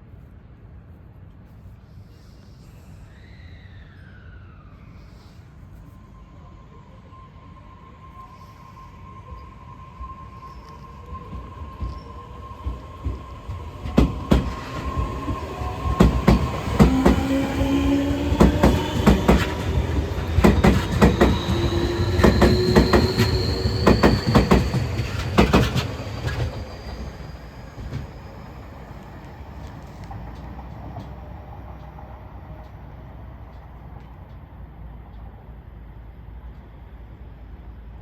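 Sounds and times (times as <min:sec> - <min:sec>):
electric train motor whine: 0:05.9 - 0:30.2
train wheels clacking on rail joints: 0:10.7 - 0:28.2.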